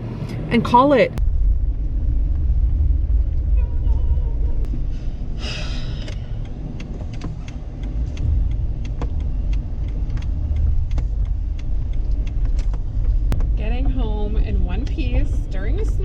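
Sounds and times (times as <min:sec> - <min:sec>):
car engine and road rumble: 0:00.0 - 0:16.0
light ticks: 0:05.9 - 0:16.0.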